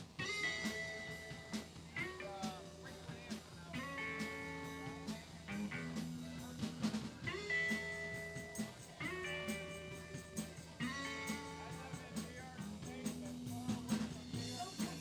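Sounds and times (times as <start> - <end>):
bass: 0.0 - 15.0
steady drum beat: 0.0 - 15.0.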